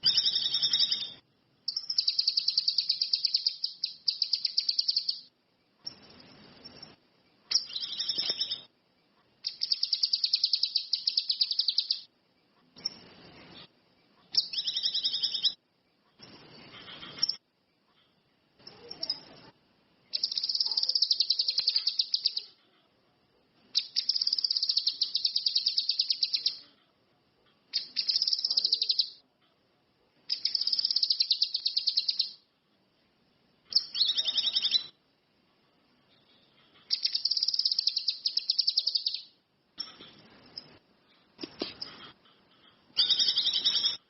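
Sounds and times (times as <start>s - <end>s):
songbird trilling: 0.0s - 5.3s, 7.5s - 8.7s, 9.5s - 12.1s, 14.3s - 15.6s, 20.1s - 22.6s, 23.8s - 26.6s, 27.8s - 29.2s, 30.3s - 32.4s, 33.7s - 35.0s, 36.9s - 39.3s, 43.0s - 44.0s.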